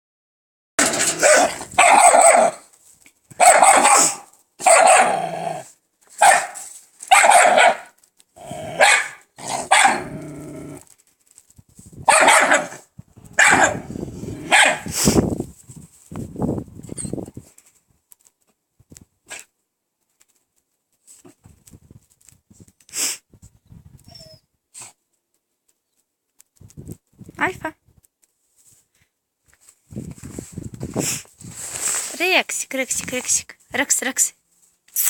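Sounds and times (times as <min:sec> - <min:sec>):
dog barking loudly: 0:00.8 - 0:02.7, 0:03.4 - 0:05.6, 0:06.2 - 0:10.3, 0:12.1 - 0:14.9.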